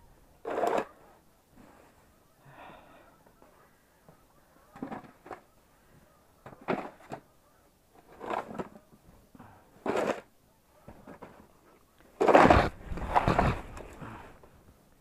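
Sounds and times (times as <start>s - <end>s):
snow crunching scrapes: 12.2s - 14.0s.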